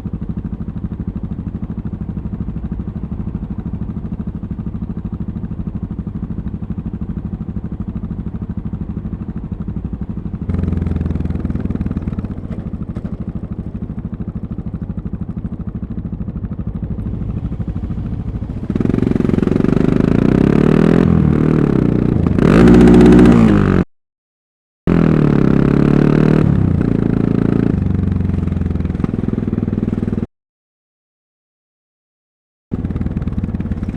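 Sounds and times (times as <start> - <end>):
motorcycle engine revving: 3.7 - 23.9, 24.9 - 30.3, 32.7 - 33.9.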